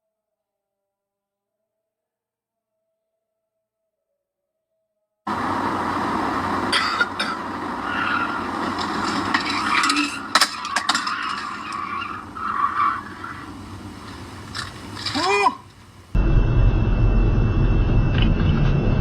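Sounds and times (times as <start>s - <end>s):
vehicle road noise: 5.3s - 19.0s
sharp knocks and clatters: 8.6s - 11.9s
short rising pitched sound: 16.2s - 19.0s.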